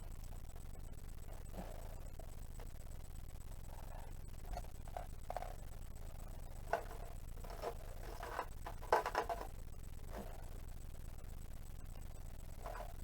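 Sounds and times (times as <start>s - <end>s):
steady low hum: 0.0s - 13.0s
clicks and knocks on plastic casing: 6.7s - 9.5s.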